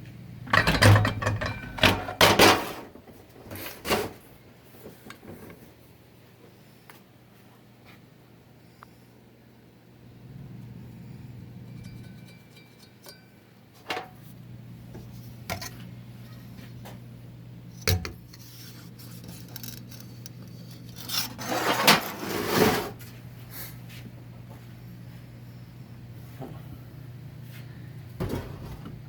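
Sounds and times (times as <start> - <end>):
metal scraping and rubbing: 18.3 - 23.0.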